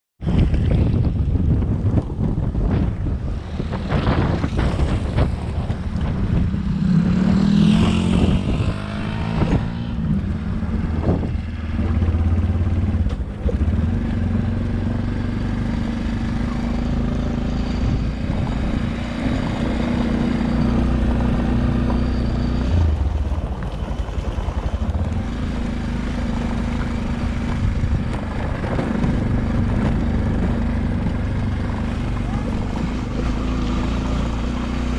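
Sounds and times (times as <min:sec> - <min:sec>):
wind noise on microphone: 0:00.2 - 0:34.9
vehicle engine running: 0:10.2 - 0:34.9.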